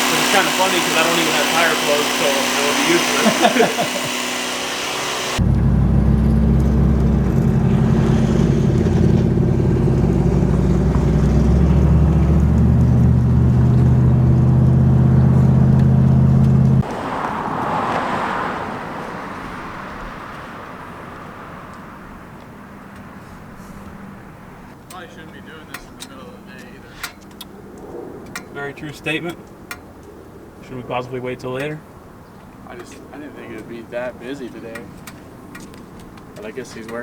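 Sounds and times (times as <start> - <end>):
engine idling loudly: 0.0 - 16.9.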